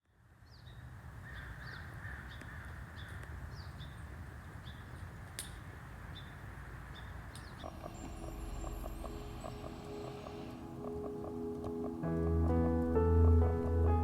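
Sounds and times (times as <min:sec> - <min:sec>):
bird calling in high notes: 0:07.6 - 0:12.2
steady low rumble: 0:07.6 - 0:14.0.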